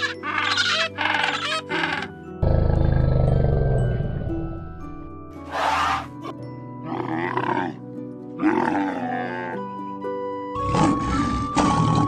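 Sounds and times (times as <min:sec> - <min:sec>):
animal calling: 0:00.0 - 0:02.2, 0:05.4 - 0:06.3
background music melody: 0:00.0 - 0:12.0.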